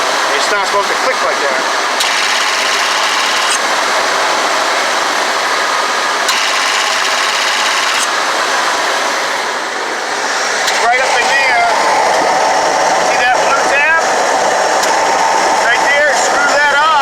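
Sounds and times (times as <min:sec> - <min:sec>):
van engine running: 0:00.0 - 0:17.0
ac compressor clutch clicking: 0:02.0 - 0:03.6, 0:06.2 - 0:08.2, 0:10.6 - 0:11.1.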